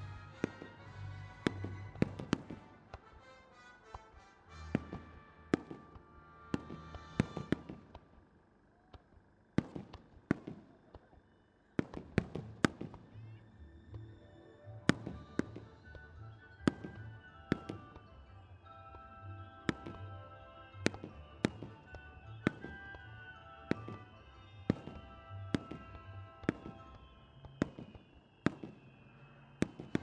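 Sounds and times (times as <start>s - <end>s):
firework bangs: 0.0s - 3.2s, 3.8s - 8.1s, 9.6s - 10.7s, 11.8s - 13.2s, 16.7s - 18.1s, 19.7s - 20.1s, 20.8s - 30.0s
music from loudspeakers: 0.0s - 7.5s, 13.9s - 27.4s.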